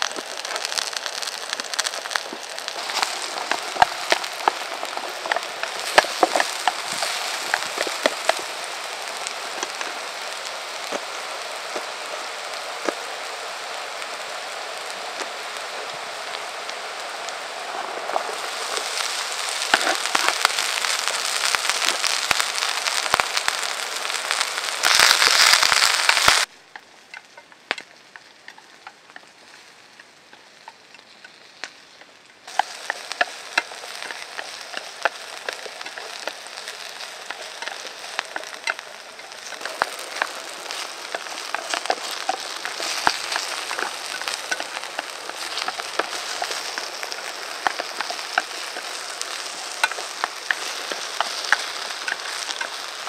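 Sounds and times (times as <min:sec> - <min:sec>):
campfire wood crackling: 0:00.0 - 0:53.0
food sizzling in a pan: 0:00.0 - 0:53.0.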